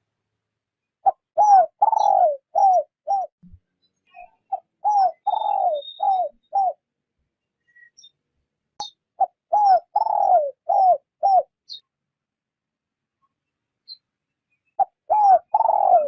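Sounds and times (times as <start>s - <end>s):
faint high bird chirps: 0.8s - 12.0s, 13.2s - 16.0s
dove cooing: 1.0s - 3.3s, 4.5s - 6.8s, 9.2s - 11.5s, 14.8s - 16.0s.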